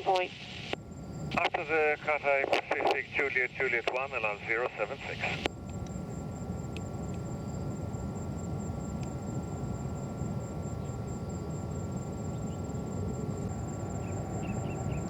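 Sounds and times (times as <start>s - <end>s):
distant jet aircraft rumble: 0.4s - 15.0s
faint chirps: 10.7s - 15.0s.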